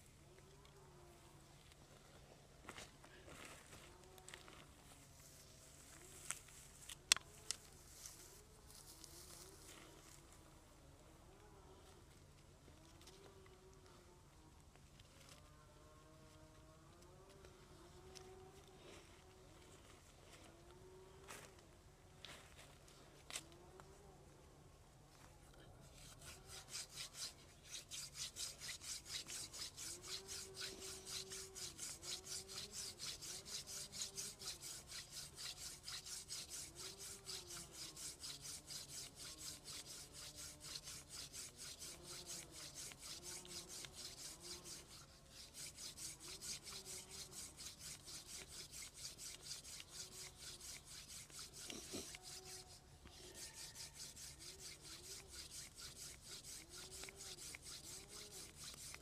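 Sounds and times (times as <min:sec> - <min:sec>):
wooden spindle rubbing: 0:25.9 - 0:59.0.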